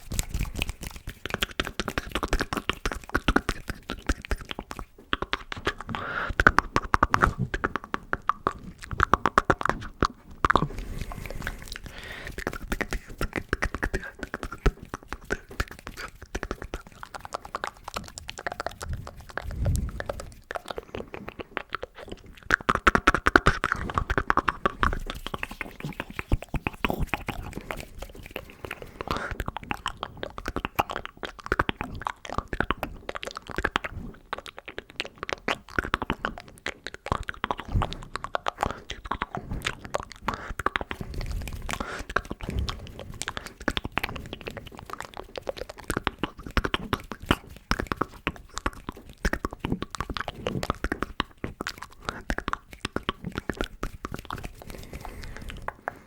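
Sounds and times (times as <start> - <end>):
wet mouth clicks and smacks: 0.0 - 56.0
low thumps: 18.9 - 20.5.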